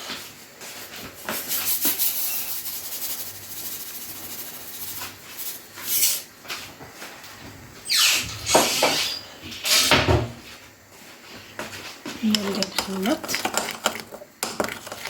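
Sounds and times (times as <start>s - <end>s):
scraping in a mixing bowl: 11.7s - 15.0s.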